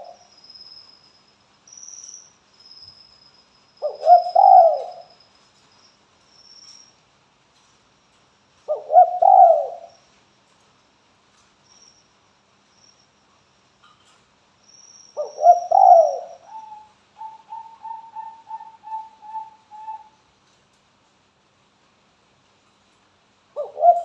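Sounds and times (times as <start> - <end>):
dove cooing: 3.8 - 5.1, 8.7 - 10.0, 15.2 - 20.2, 23.6 - 24.0.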